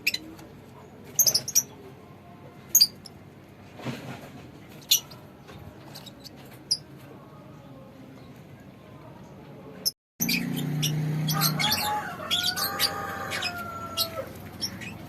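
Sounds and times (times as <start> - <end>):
birds chirping shrilly: 10.2 - 15.0.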